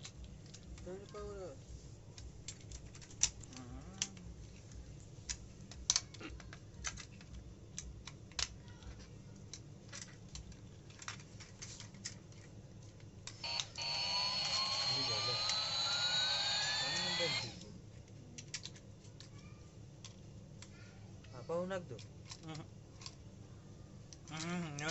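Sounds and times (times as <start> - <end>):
plastic parts clicking and tapping: 0.0 - 1.3, 2.1 - 13.7, 18.0 - 19.4, 20.0 - 21.3, 21.9 - 23.2.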